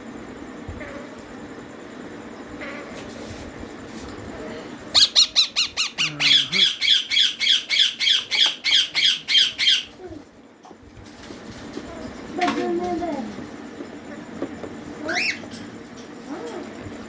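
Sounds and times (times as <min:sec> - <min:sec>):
parakeet chicks begging calls: 0:04.9 - 0:10.0, 0:15.0 - 0:15.6.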